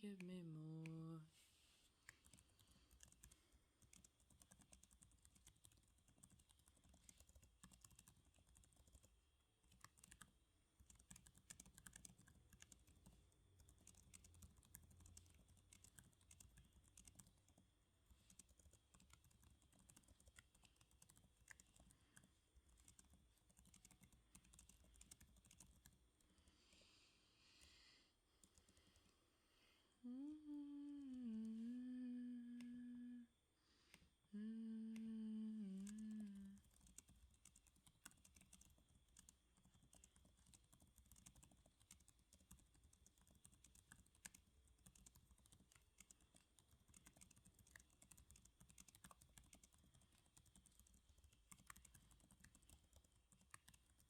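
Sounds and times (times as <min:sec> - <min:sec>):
woman humming: 0:00.0 - 0:01.3, 0:30.0 - 0:33.4, 0:34.3 - 0:36.6
typing on a keyboard: 0:02.1 - 0:26.4, 0:35.0 - 0:54.0.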